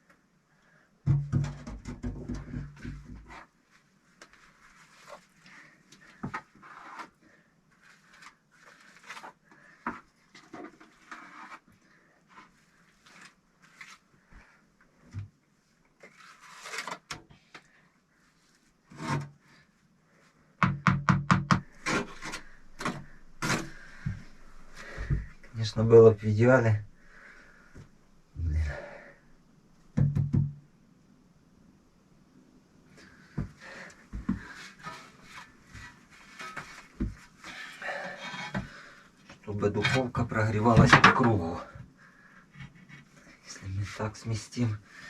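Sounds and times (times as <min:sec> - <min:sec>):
bricks scraping: 0:21.8 - 0:24.2.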